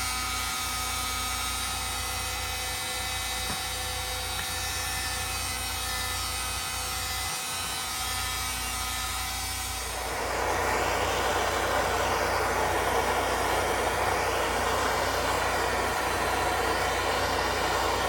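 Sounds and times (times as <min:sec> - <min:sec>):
machine humming with whining tones: 0:00.0 - 0:18.0.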